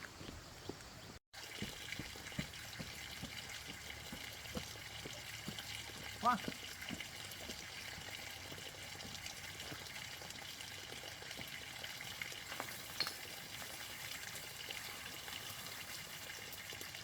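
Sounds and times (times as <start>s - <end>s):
running water hiss: 1.4s - 17.0s.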